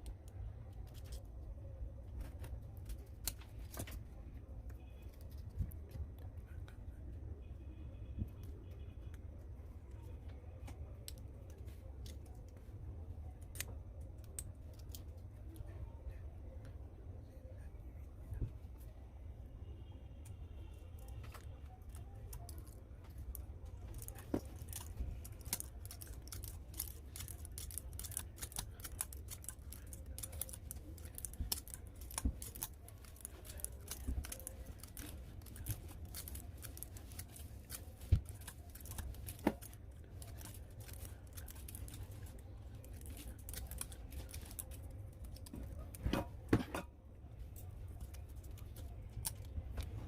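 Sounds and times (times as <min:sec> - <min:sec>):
clicks and scrapes of small parts: 0:21.0 - 0:46.9.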